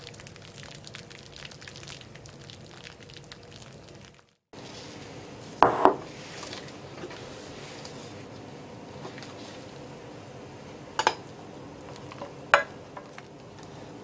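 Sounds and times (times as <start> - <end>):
rice crackling in a pot: 0.0 - 10.0.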